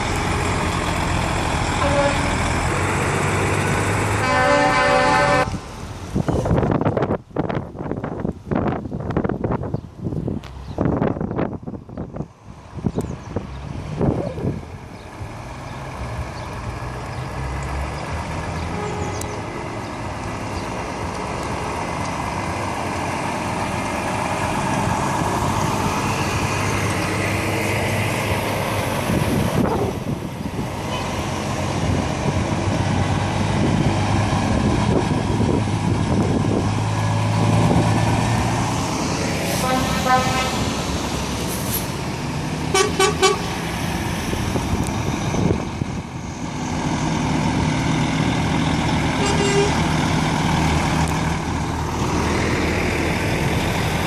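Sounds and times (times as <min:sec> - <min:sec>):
heavy truck engines: 0:00.0 - 0:54.0
truck horn: 0:01.8 - 0:02.5, 0:04.2 - 0:05.6, 0:18.7 - 0:19.4, 0:30.9 - 0:31.2, 0:39.6 - 0:40.8, 0:42.7 - 0:43.6, 0:49.2 - 0:49.9.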